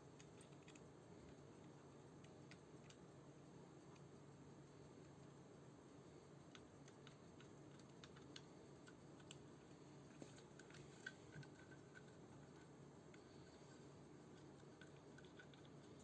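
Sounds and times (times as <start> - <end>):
low steady hum: 0.0 - 16.0
faint small clicks and taps: 0.1 - 3.0, 6.4 - 13.5.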